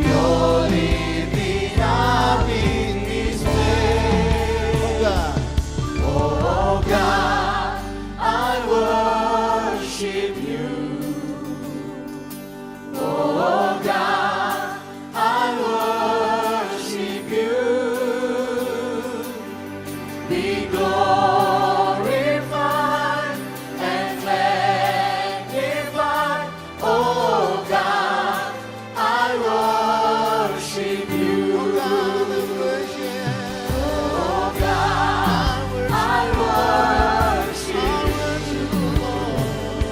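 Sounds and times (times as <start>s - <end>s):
bass line: 0.0s - 9.6s, 33.7s - 39.9s
instrumental accompaniment: 0.0s - 39.9s
worship song singing: 0.0s - 39.9s.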